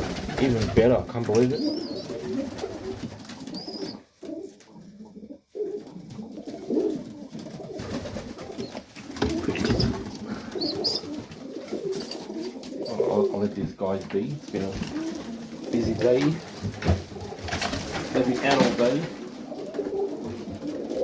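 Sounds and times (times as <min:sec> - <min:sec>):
pigeons cooing: 0:00.0 - 0:13.5, 0:14.6 - 0:21.0
pigeon squeaks: 0:01.6 - 0:02.4, 0:03.4 - 0:04.1, 0:08.4 - 0:11.2, 0:11.8 - 0:13.0.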